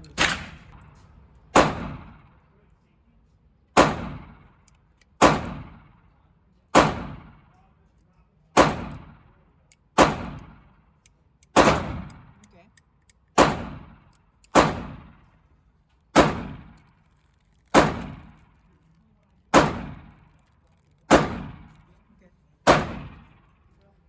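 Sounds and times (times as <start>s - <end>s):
gunshots with echo: 0.2s - 2.4s, 3.8s - 4.4s, 5.2s - 6.0s, 6.8s - 7.5s, 8.6s - 9.2s, 10.0s - 10.7s, 11.6s - 12.4s, 13.4s - 14.0s, 14.6s - 15.2s, 16.2s - 16.8s, 19.6s - 20.1s, 21.1s - 21.7s, 22.7s - 23.5s.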